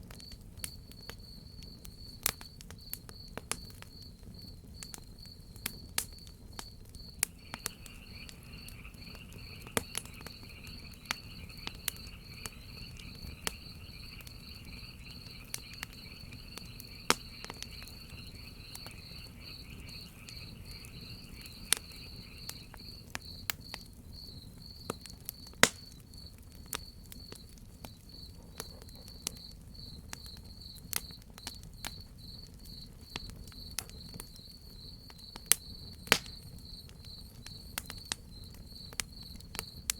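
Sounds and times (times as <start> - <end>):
wood fire crackling: 0.0 - 39.9
crickets chirping: 0.2 - 39.9
lower-pitched insect chorus: 0.2 - 39.9.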